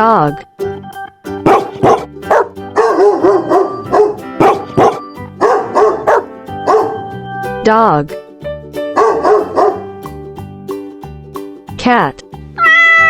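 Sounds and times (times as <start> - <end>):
background music: 0.0 - 13.0
dog barking: 1.4 - 7.1, 9.0 - 9.9.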